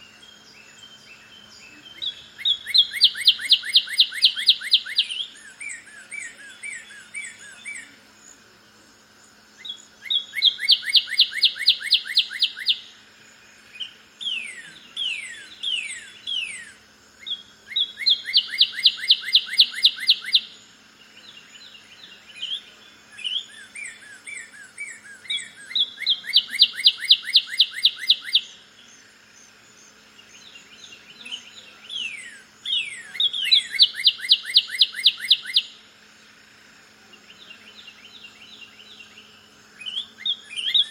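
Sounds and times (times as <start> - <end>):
high-pitched bird twittering: 23.3 - 28.5, 31.3 - 35.8.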